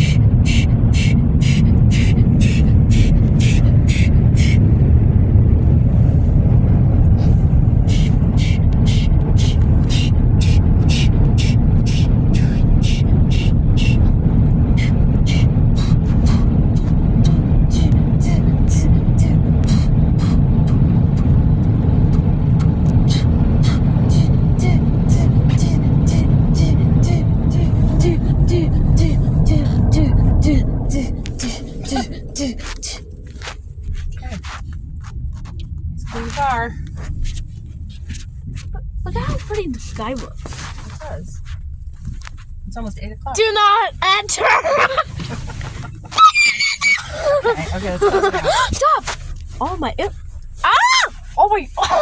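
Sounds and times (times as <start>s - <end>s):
fast even ticking: 0.0s - 4.7s, 7.8s - 34.4s
car wash dryer blowers: 0.0s - 33.6s, 42.7s - 46.2s, 47.0s - 52.0s.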